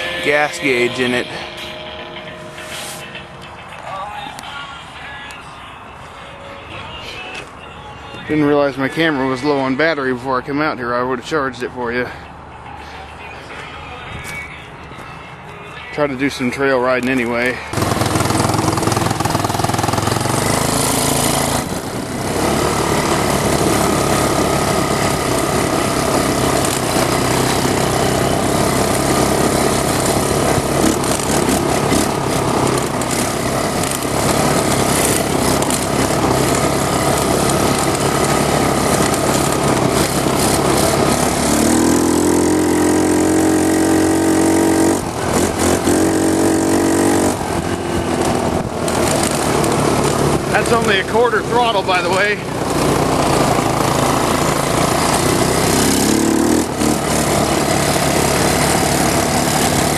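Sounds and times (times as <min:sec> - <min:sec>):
engine revving: 0:16.3 - 0:59.9.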